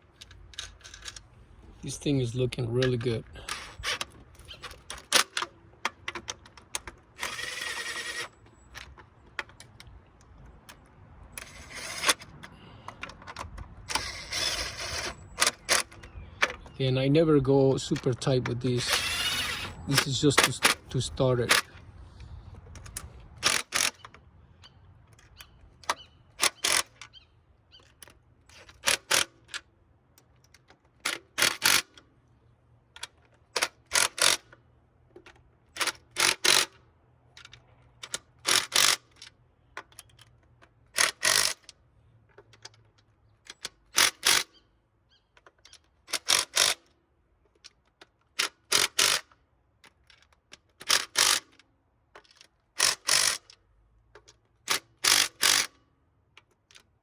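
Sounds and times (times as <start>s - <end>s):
ratchet wrench clicking: 23.4s - 24.0s, 33.6s - 34.5s, 35.8s - 36.8s, 38.1s - 39.2s, 41.0s - 41.7s, 43.5s - 44.6s, 46.1s - 46.9s, 48.4s - 51.6s, 52.2s - 53.6s, 54.2s - 55.8s.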